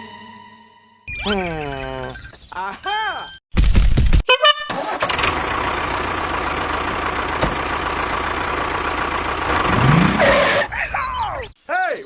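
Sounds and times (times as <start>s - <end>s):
engine running steadily: 5.2s - 10.8s.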